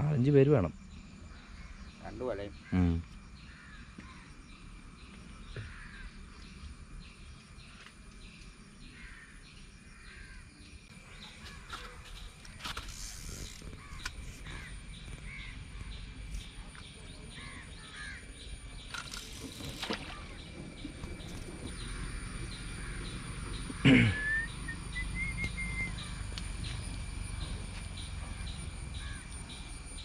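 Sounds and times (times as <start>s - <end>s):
birds chirping and calling: 8.9s - 30.0s.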